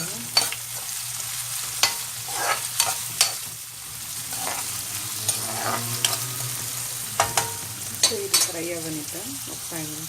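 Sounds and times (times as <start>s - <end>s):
onions sizzling in oil: 0.0s - 10.0s
spatula scraping and knocking pan: 1.6s - 8.7s.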